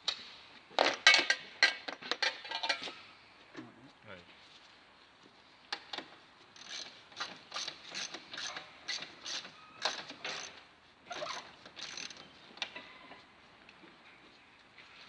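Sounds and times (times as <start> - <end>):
ratchet spanner clicking: 6.6 - 12.2.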